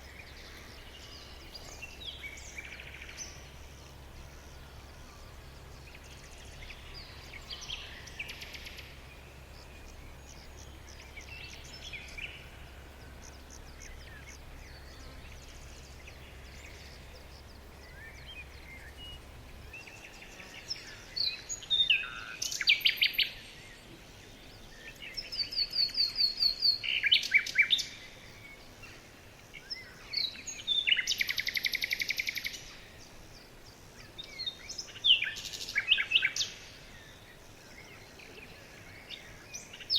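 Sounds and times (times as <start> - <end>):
faint low hum: 0.0 - 39.9
songbirds singing: 0.0 - 39.9.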